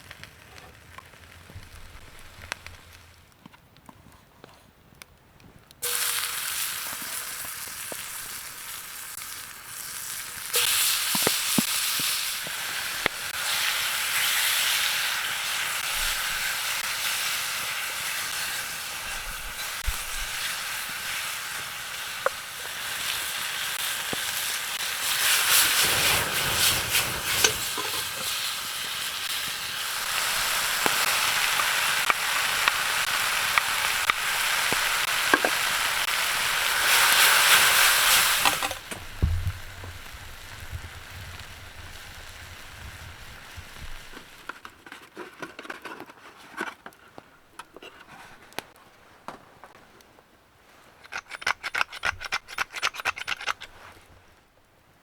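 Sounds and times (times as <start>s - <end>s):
frying pops: 0.0s - 4.0s, 5.0s - 54.0s
food sizzling in a pan: 5.8s - 44.6s.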